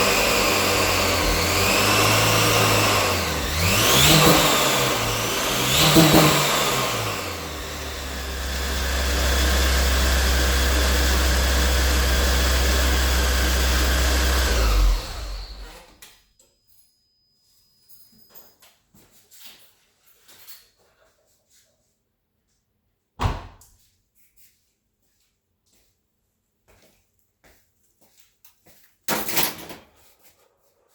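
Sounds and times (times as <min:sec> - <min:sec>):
car engine revving and running: 0:00.0 - 0:15.9.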